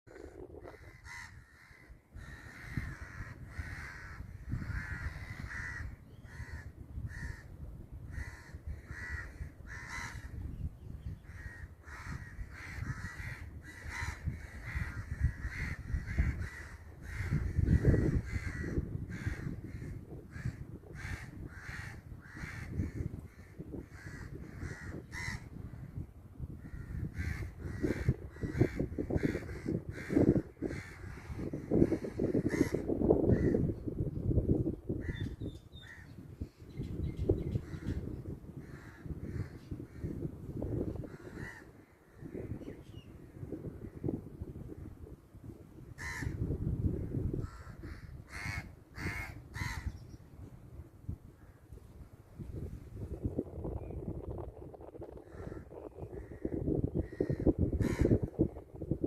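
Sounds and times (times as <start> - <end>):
crow cawing: 0.2 - 7.5, 8.1 - 10.4, 11.2 - 25.5, 26.6 - 33.6, 41.0 - 42.4, 46.0 - 46.4, 47.4 - 50.0, 55.1 - 58.3.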